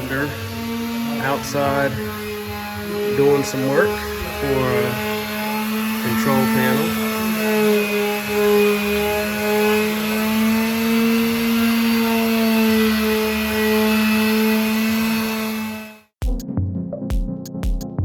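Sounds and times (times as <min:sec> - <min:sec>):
electric power tool motor hum: 0:00.0 - 0:16.1
music with a beat: 0:16.2 - 0:18.0.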